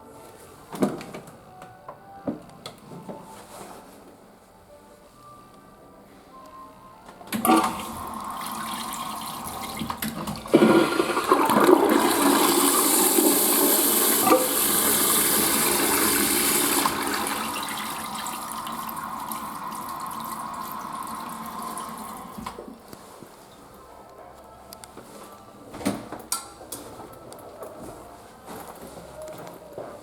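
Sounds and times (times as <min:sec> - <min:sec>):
toilet flushing: 0:07.4 - 0:22.7.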